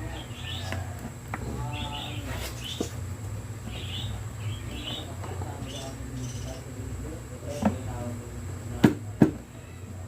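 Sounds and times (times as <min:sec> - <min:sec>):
small birds chirping: 0:00.0 - 0:03.0, 0:03.6 - 0:08.0
steady low hum: 0:00.0 - 0:10.0.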